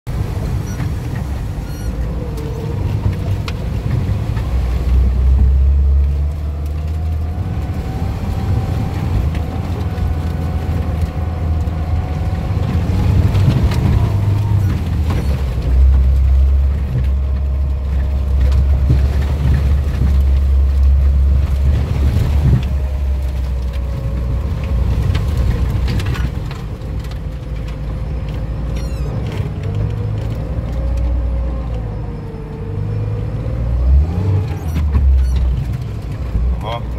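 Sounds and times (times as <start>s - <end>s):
engine rumble: 0.0s - 36.9s
off-road vehicle driving through mud: 0.1s - 36.9s.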